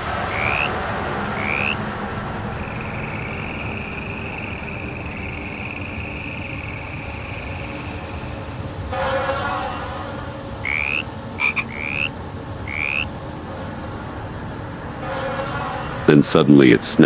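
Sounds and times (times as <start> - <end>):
steady high trill: 0.0 - 13.2
frogs chirping: 0.0 - 16.2.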